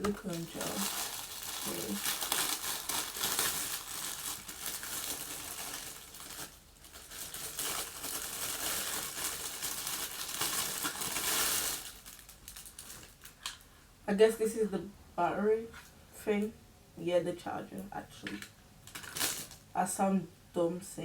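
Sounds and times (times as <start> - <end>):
packaging crinkling and rustling: 0.0 - 13.7, 18.2 - 19.7.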